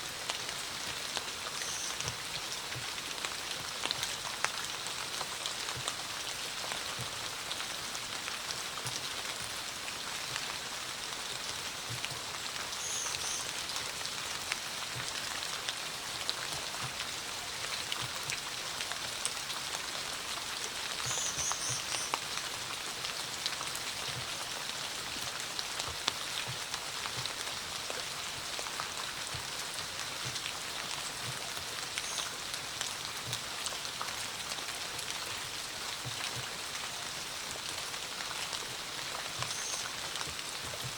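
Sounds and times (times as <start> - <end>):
steady rain with drops tapping: 0.0 - 40.9.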